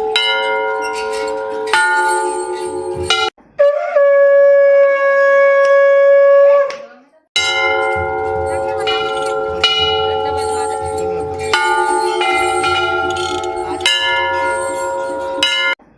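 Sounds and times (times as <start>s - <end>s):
temple bell ringing: 0.0s - 3.4s, 7.4s - 15.8s.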